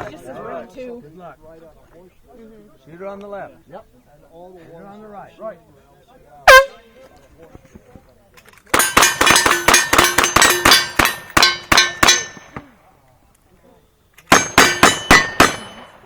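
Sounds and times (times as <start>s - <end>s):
bullets ringing on steel targets: 8.7s - 12.6s, 14.3s - 16.0s.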